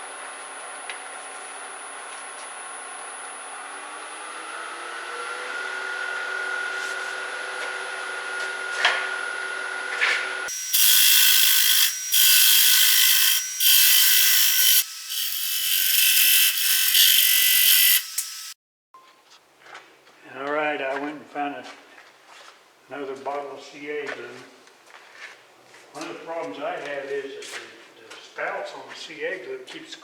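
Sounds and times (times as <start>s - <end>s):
wood lathe motor running: 3.5s - 18.6s
tool scraping spinning wood: 9.9s - 18.6s.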